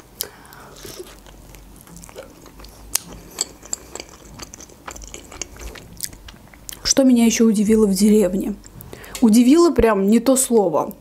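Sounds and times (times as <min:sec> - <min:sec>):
wet chewing and mouth smacks: 0:00.2 - 0:06.9.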